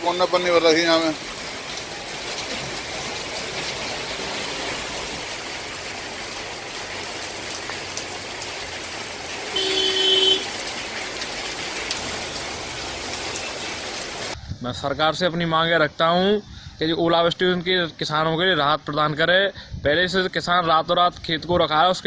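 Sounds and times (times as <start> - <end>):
steady rain: 0.0 - 14.4.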